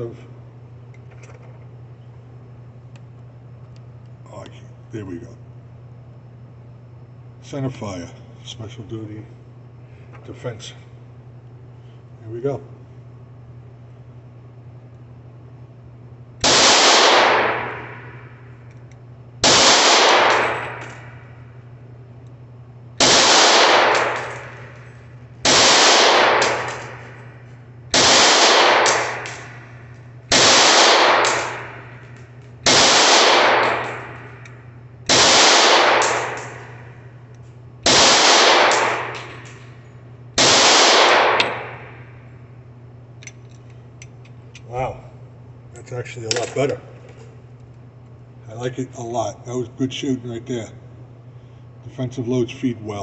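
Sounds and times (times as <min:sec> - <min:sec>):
low hum: 0:00.0 - 0:53.0
pistol shots with echo: 0:16.4 - 0:18.2, 0:19.4 - 0:21.1, 0:23.0 - 0:24.8, 0:25.5 - 0:27.1, 0:27.9 - 0:29.7, 0:30.3 - 0:31.9, 0:32.6 - 0:34.3, 0:35.1 - 0:36.9, 0:37.9 - 0:39.4, 0:40.4 - 0:42.0.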